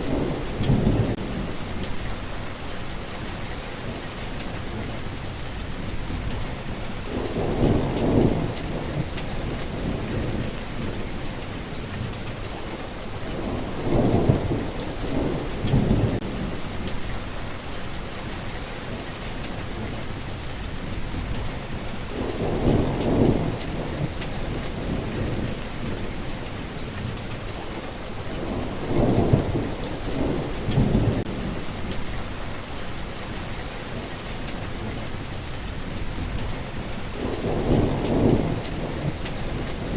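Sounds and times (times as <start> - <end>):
low thunder rumbling: 0.0 - 12.5, 13.1 - 32.8, 33.4 - 39.9
steady rain: 0.0 - 39.9.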